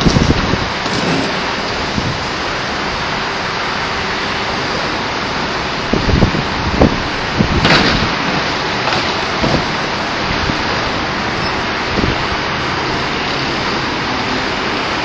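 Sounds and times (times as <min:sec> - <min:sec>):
wind rushing over microphone: 0:00.0 - 0:15.0
low buffeting thumps: 0:09.2 - 0:12.7.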